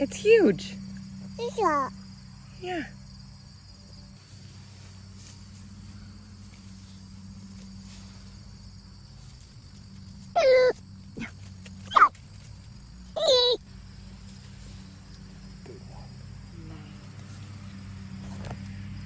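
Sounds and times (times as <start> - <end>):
insects droning: 0.0 - 19.0
high animal cries: 10.4 - 11.3, 11.9 - 12.2, 13.2 - 13.6.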